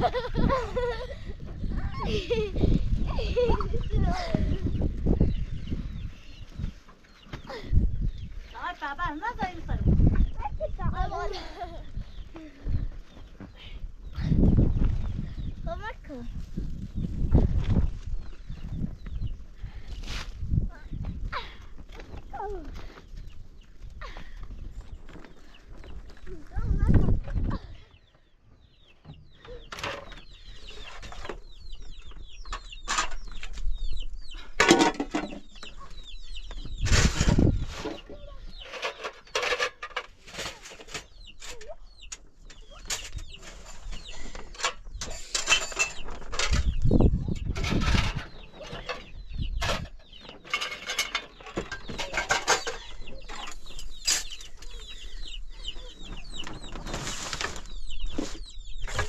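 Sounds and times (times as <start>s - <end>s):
poultry clucking and chirping: 0.0s - 59.0s
knocks and rustles: 42.5s - 54.5s.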